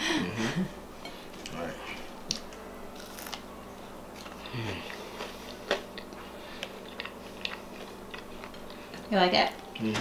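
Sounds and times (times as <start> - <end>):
person chewing: 2.3 - 3.4, 4.1 - 9.1.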